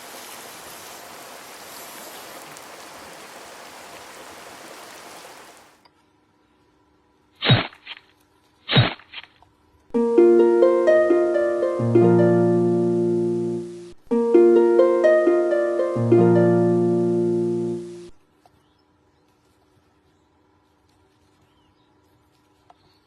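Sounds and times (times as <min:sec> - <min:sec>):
harp-like plucked arpeggio: 0:10.0 - 0:18.1
low bass notes: 0:10.0 - 0:18.1.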